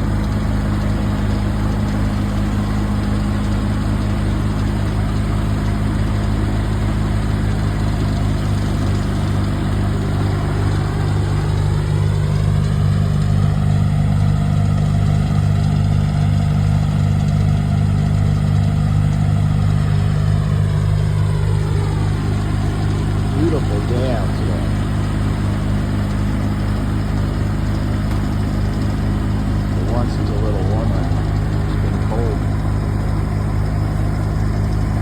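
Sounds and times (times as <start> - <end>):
large engine idling: 0.0 - 35.0.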